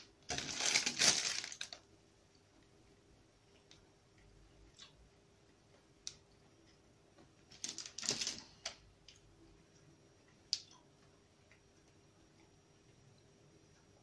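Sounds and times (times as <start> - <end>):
plastic packet crinkling: 0.2 - 1.8, 7.5 - 8.6.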